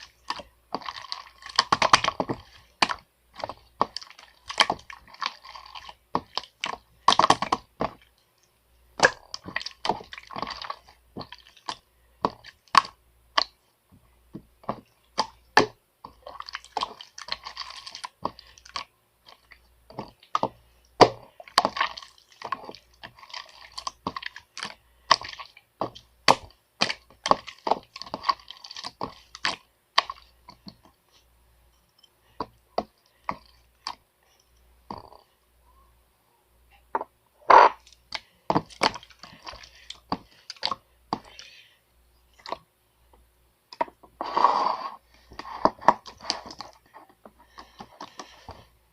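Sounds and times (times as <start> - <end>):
rustling noise: 44.0 - 48.9.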